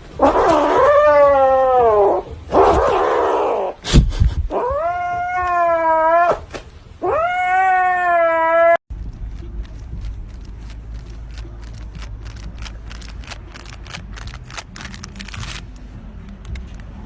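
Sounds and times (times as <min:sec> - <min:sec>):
cat hissing and yowling: 0:00.2 - 0:03.8, 0:04.5 - 0:08.8.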